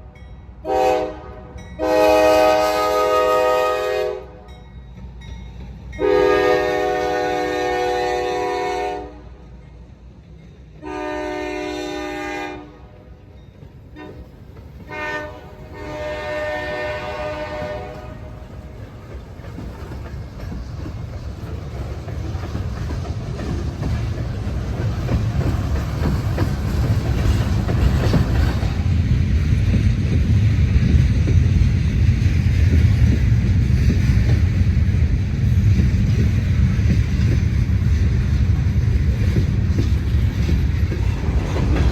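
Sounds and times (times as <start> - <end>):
locomotive horn blasts: 0.6 - 4.6, 6.0 - 9.4, 10.8 - 13.0, 14.0 - 14.3, 14.9 - 18.8
wheels clicking over rail joints: 13.5 - 41.9
locomotive engine rumble: 13.6 - 41.9.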